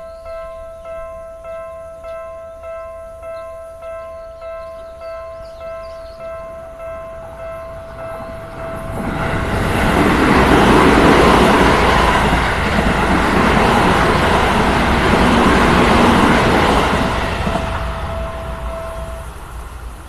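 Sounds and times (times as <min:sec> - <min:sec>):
crossing warning bell ringing: 0:00.0 - 0:19.9
train wheels rushing on rail: 0:07.8 - 0:20.0.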